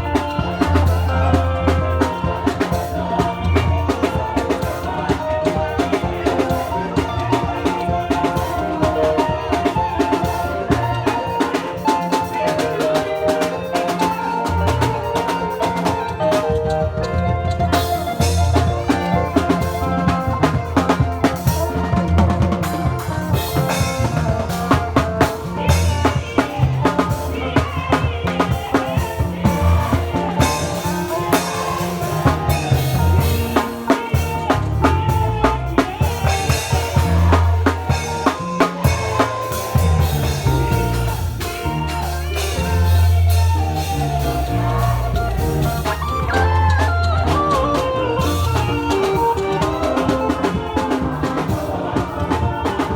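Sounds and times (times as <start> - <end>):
lively praise music: 0.0 - 52.9
heavy bass line: 16.8 - 52.9.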